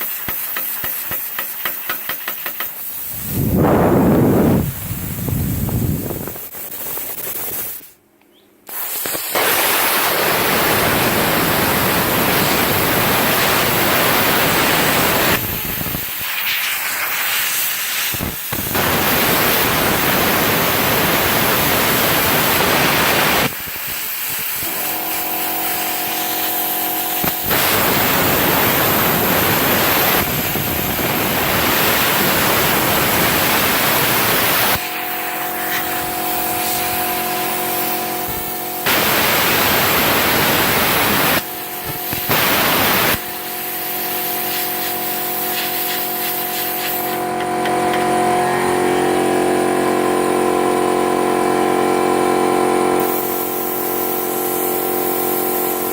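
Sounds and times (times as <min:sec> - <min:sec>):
plasma cutter hissing: 0:00.0 - 0:08.0, 0:08.7 - 0:49.0, 0:53.0 - 0:55.9
buzzing hum: 0:03.1 - 0:06.5.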